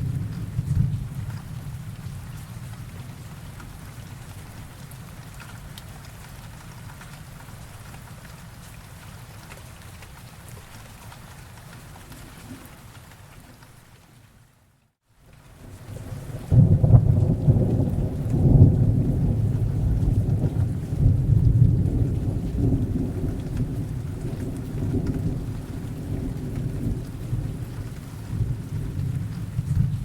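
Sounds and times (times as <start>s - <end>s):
thunder rumbling: 0.0s - 3.8s, 15.9s - 30.0s
steady rain: 0.0s - 30.0s.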